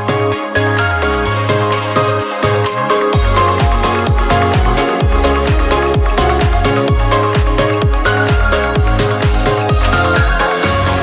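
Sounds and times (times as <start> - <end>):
electronic dance music: 0.0 - 11.0
deep bass notes dropping in pitch: 2.6 - 11.0.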